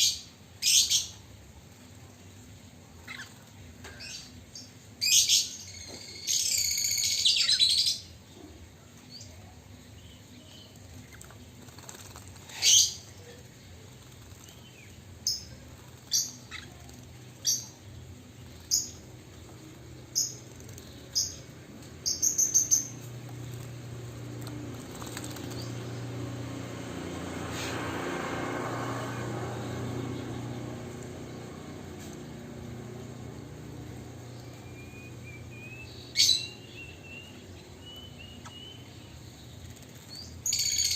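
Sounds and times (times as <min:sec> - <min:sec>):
bird singing: 0:02.9 - 0:26.9, 0:28.8 - 0:40.9
soft rushing noise: 0:22.9 - 0:35.5.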